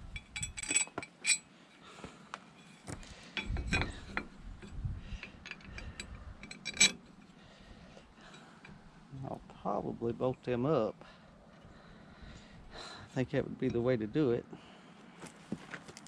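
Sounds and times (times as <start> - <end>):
steel clinking against metal: 0.1 - 1.5, 2.5 - 7.4
metal scraping and handling knocks: 0.1 - 1.8, 2.4 - 7.4.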